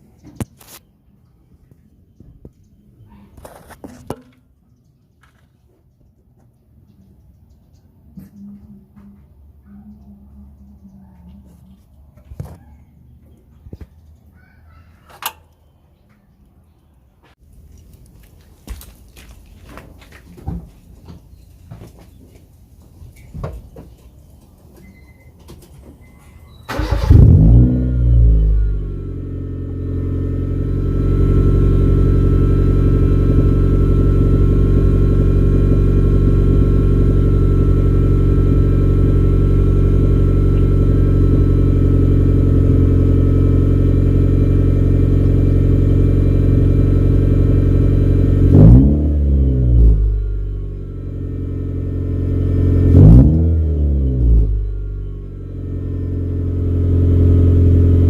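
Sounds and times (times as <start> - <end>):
car engine idling and revving: 26.7 - 58.0.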